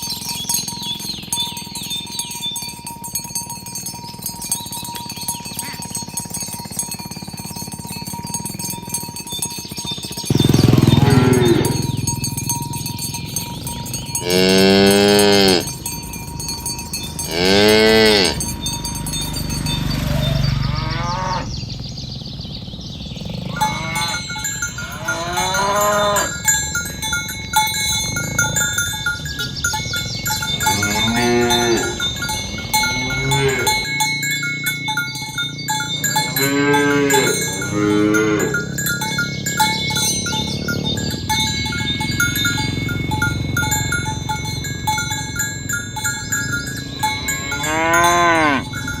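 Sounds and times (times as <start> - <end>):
bell-like notes: 0.0 - 49.0
cattle mooing: 10.3 - 12.5, 13.3 - 21.6, 23.4 - 26.9, 30.1 - 34.1, 36.0 - 41.3, 46.5 - 49.0.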